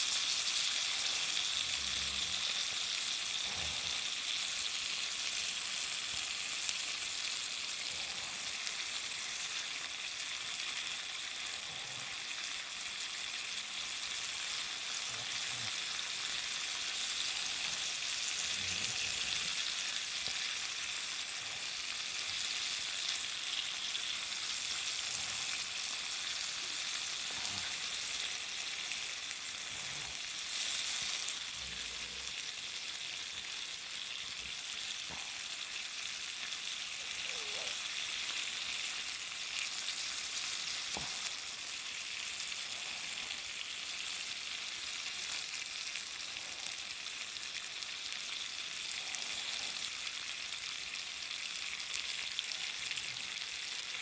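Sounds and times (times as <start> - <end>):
food sizzling in a skillet: 0.0 - 54.0.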